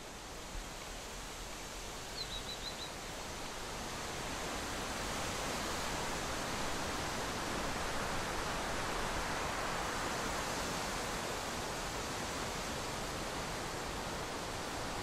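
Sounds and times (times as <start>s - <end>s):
bird chirping: 2.2s - 2.9s.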